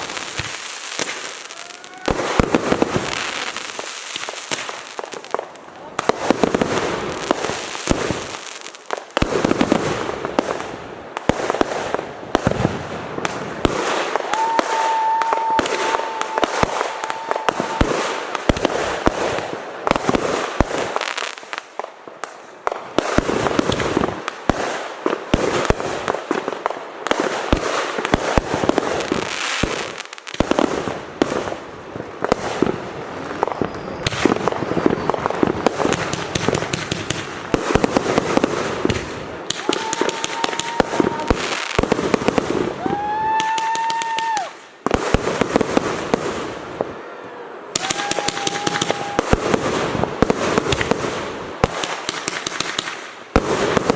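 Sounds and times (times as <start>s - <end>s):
fireworks bangs and crackling: 0.0s - 53.9s
firework whistle: 14.3s - 18.2s, 33.4s - 35.8s, 39.5s - 41.6s, 47.8s - 49.6s.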